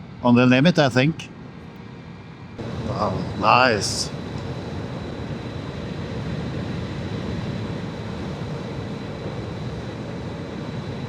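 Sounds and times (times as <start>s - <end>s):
wind and road noise: 1.1s - 11.0s.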